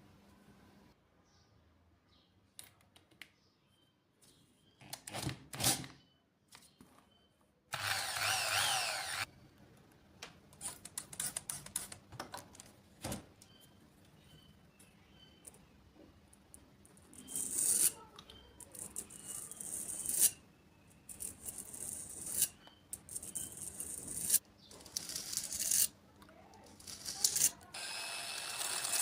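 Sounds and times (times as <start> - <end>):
small power tool running: 7.7 - 9.3, 27.8 - 29.0
tools clicking and scraping: 10.6 - 12.7, 21.1 - 26.0, 26.6 - 27.6.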